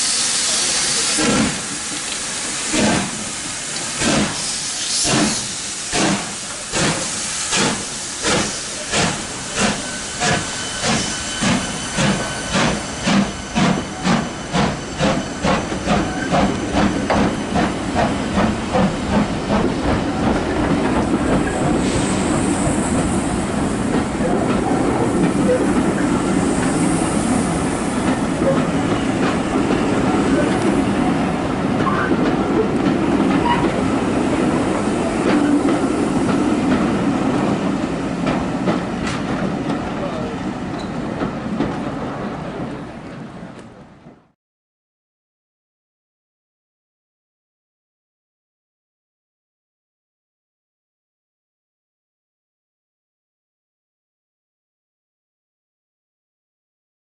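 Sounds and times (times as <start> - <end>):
steady hiss of steam: 0.0 - 31.8
steam locomotive exhaust beats: 0.0 - 42.8
train running noise: 0.0 - 44.4.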